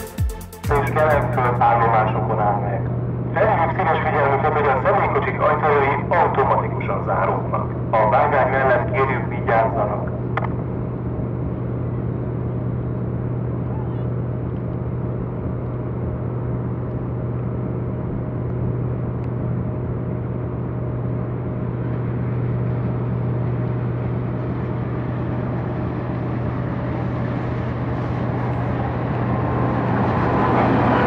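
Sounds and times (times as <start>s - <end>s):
diesel train engine humming: 0.0s - 31.0s.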